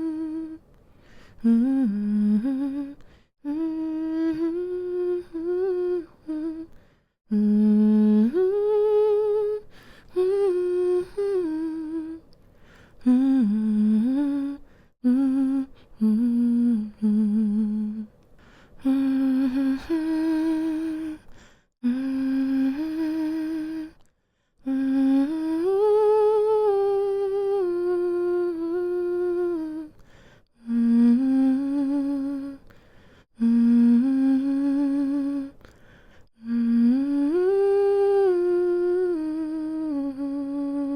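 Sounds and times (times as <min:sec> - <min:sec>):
woman humming a lullaby: 0:00.0 - 0:00.6, 0:01.4 - 0:06.7, 0:36.4 - 0:40.9.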